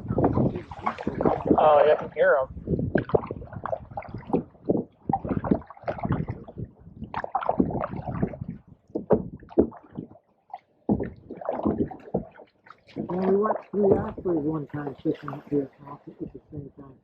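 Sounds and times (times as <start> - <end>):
paddles dipping in water: 0.0 - 16.7
water splashing against hull: 0.0 - 17.0.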